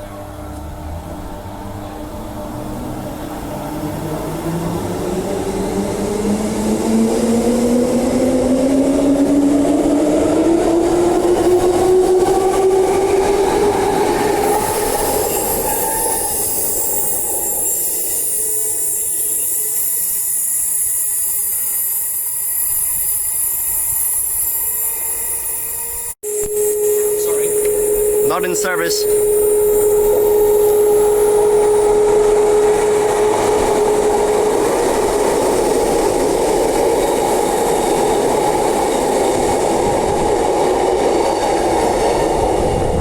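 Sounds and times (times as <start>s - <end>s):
electric train motor whine: 14.4s - 36.4s.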